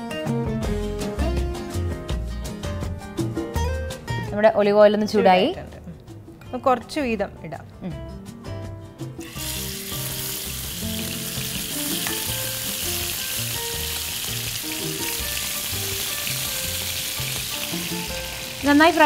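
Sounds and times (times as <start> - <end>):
chicken sizzling in oil: 9.2 - 19.0.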